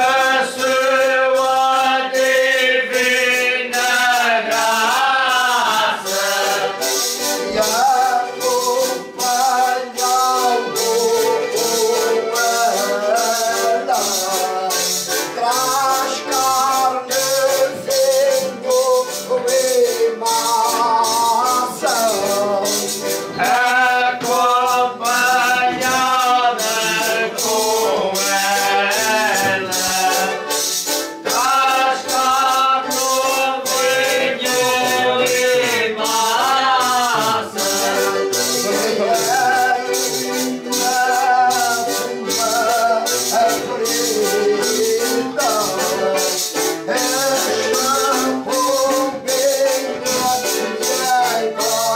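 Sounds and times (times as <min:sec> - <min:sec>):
button accordion: 0:00.0 - 0:51.9
group singing together: 0:00.0 - 0:51.9
guitar: 0:00.0 - 0:51.9
hand-shaken percussion: 0:00.0 - 0:51.9.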